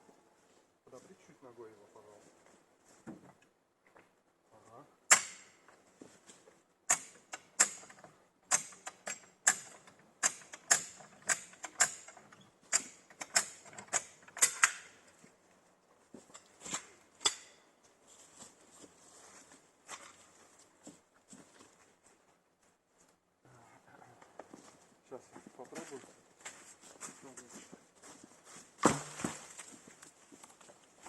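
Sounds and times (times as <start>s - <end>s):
lift jack ratcheting clacks: 6.9s - 14.9s.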